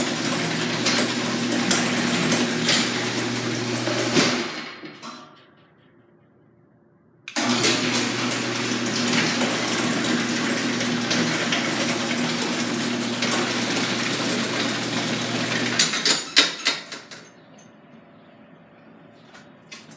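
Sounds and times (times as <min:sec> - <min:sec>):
garage door opener motor hum: 0:00.0 - 0:05.8, 0:07.3 - 0:17.4
garage door clunks: 0:00.1 - 0:05.8.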